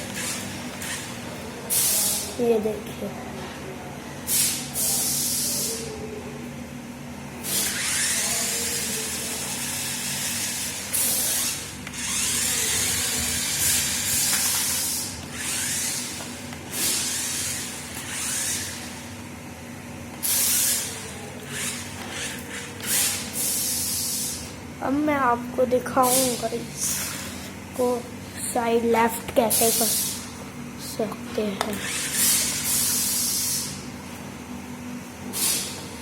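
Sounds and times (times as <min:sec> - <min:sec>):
toy truck motor whirring: 0:00.0 - 0:02.3, 0:04.3 - 0:05.9, 0:07.4 - 0:19.1, 0:20.2 - 0:24.5, 0:26.0 - 0:27.4, 0:29.4 - 0:30.2, 0:31.6 - 0:33.8.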